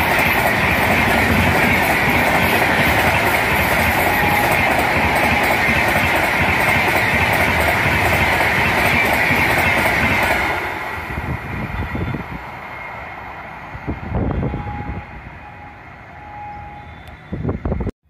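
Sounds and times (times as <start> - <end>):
train wheels clattering on rails: 0.0 - 11.3.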